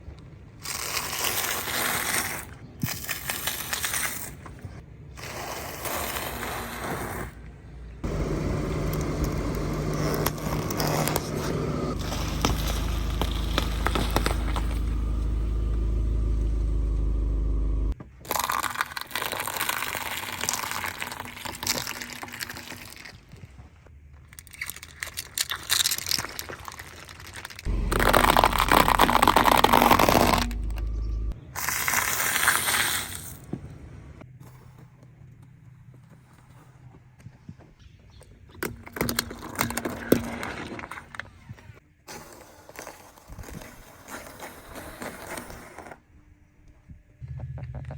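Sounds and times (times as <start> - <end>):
low engine hum: 8.0 - 18.0, 27.7 - 31.6, 47.2 - 47.9
car crushing objects: 8.0 - 18.4, 27.6 - 33.3.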